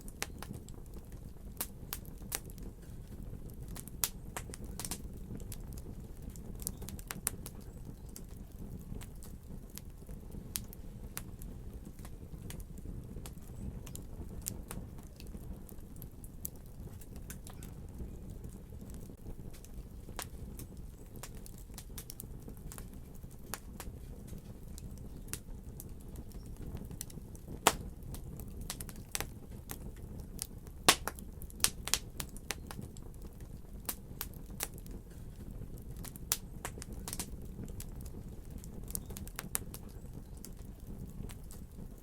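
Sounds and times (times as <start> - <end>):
fireplace fire crackling: 0.0 - 42.0.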